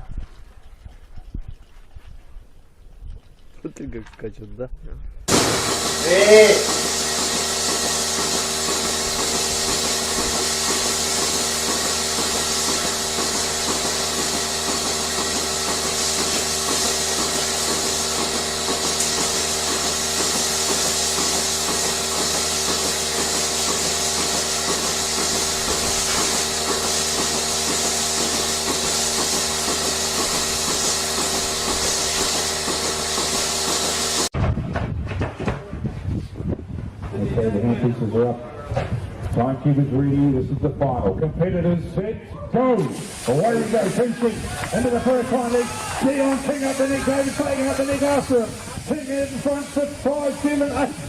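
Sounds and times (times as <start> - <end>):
fast even mechanical pulsing: 5.3 - 34.3
machine humming with hiss: 5.3 - 34.3.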